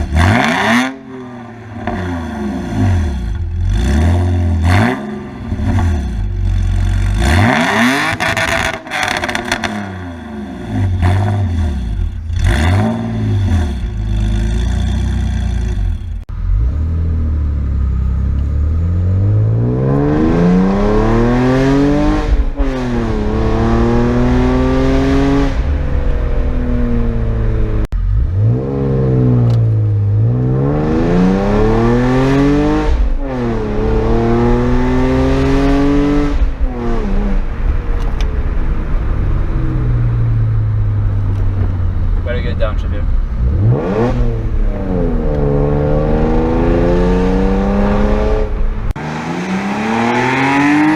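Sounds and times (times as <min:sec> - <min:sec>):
car engine revving: 0:00.0 - 0:50.9
exhaust crackling pops: 0:41.0 - 0:42.9.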